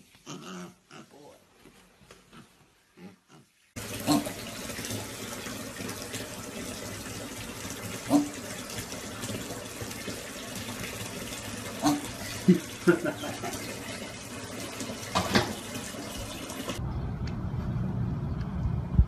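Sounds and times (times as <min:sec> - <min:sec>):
tap water running into sink: 0:03.8 - 0:16.8.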